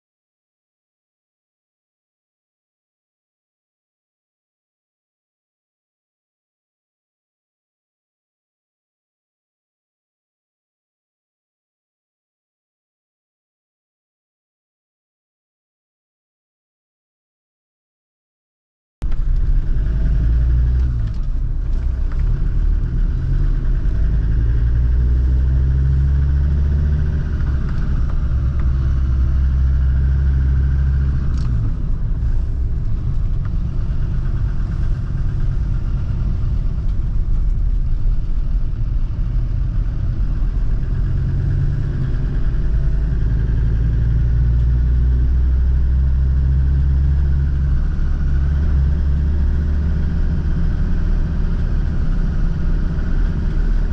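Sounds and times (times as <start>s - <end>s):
diesel engine running: 19.0s - 53.9s.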